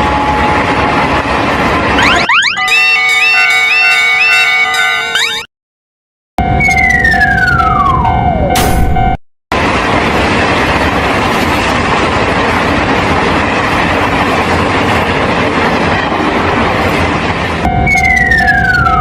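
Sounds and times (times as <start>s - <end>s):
train wheel and rail noise: 0.0s - 2.0s, 6.5s - 19.0s
high tone gliding down: 1.9s - 5.5s, 6.4s - 9.2s, 17.7s - 19.0s
steady tone: 2.0s - 4.4s.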